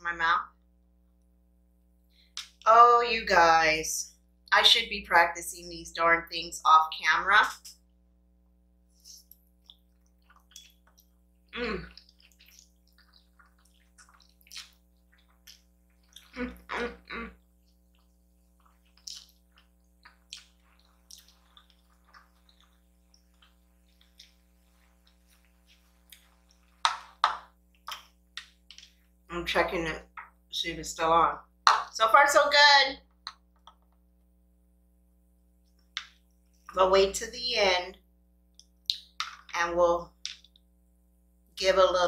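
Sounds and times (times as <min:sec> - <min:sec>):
chewing and slurping noodles: 0:09.7 - 0:16.6, 0:17.5 - 0:27.9
small mouth clicks: 0:18.7 - 0:24.4.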